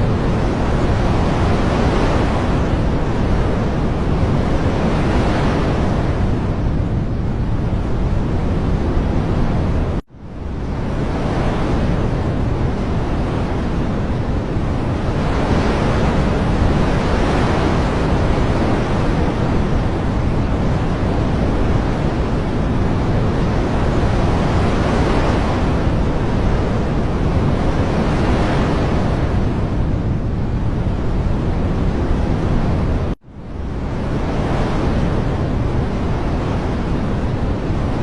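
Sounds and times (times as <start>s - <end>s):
rushing water: 10.8s - 38.0s.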